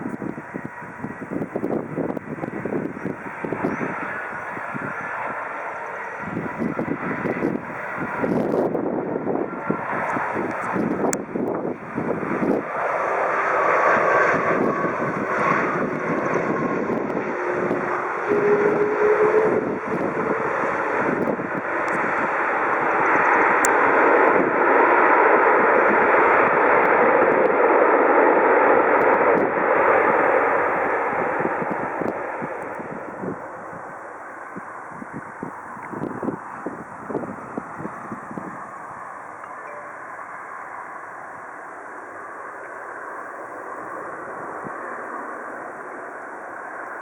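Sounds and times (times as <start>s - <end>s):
jet engine noise: 0.0s - 47.0s
faint engine tone: 37.8s - 46.4s.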